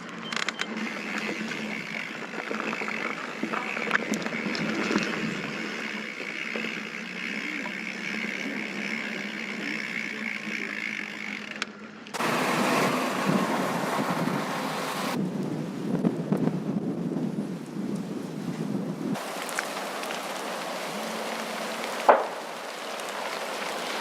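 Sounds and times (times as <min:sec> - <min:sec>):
bike tyre and drivetrain whirring: 0:00.0 - 0:24.0
wind noise on microphone: 0:12.2 - 0:21.1.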